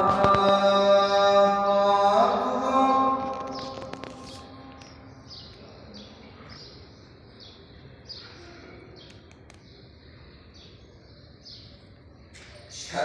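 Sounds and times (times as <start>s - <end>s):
faint background noise: 0.0s - 13.0s.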